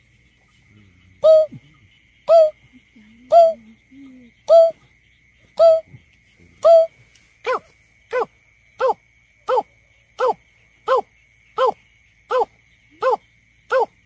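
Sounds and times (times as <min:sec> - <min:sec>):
bird hooting call: 0:01.2 - 0:01.7, 0:02.3 - 0:02.6, 0:05.6 - 0:05.9, 0:06.6 - 0:06.9.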